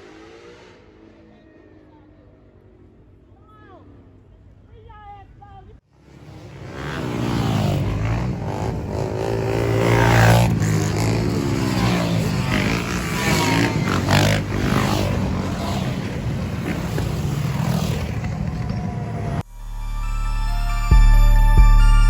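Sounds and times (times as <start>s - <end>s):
car engines revving: 0.0s - 1.6s, 6.0s - 19.5s.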